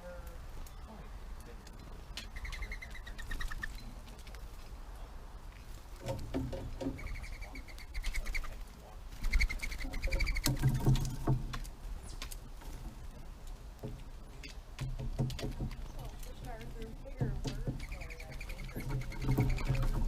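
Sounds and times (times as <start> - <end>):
birds calling high notes: 1.8 - 4.0, 6.9 - 8.6, 17.6 - 20.0.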